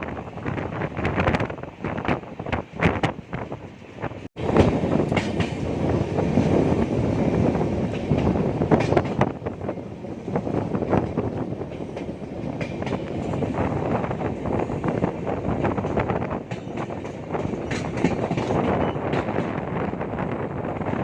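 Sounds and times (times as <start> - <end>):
train wheels clattering over rails: 4.4 - 21.0.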